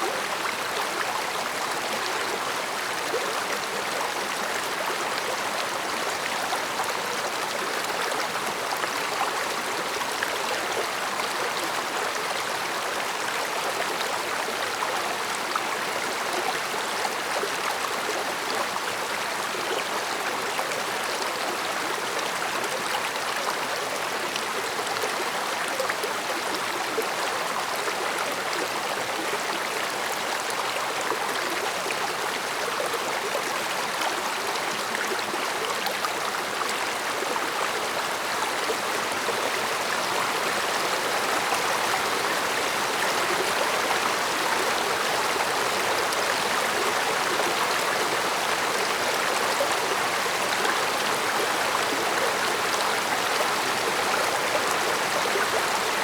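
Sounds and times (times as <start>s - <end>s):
stream flowing over stones: 0.0s - 56.0s.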